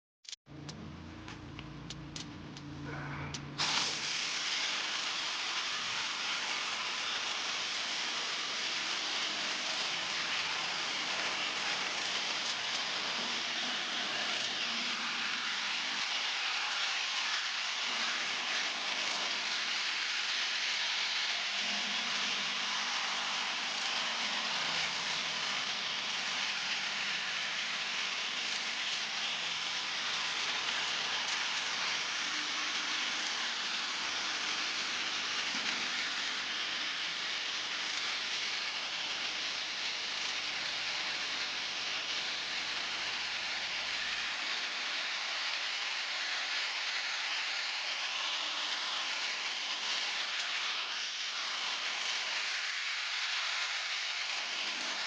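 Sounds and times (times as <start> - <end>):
pressure washer spray hissing: 3.6 - 7.4.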